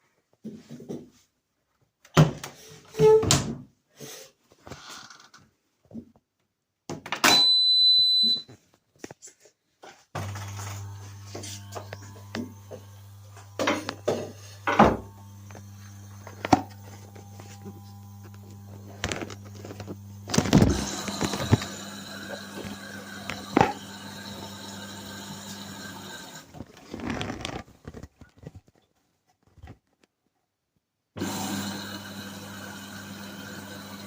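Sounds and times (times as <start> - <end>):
washing machine motor hum: 10.2 - 27.4, 31.2 - 34.0.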